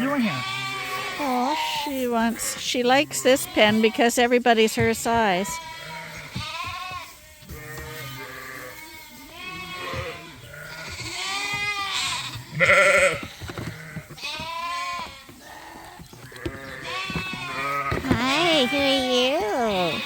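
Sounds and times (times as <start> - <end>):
sheep and lambs bleating: 0.0 - 20.0.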